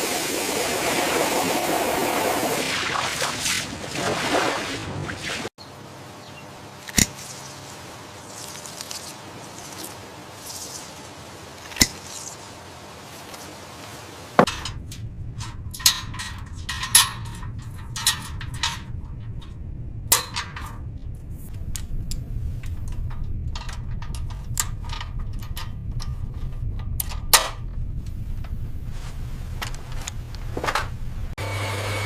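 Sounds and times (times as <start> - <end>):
steady low rumble: 14.2 - 31.4
metallic clanks and knocks: 14.4 - 19.5.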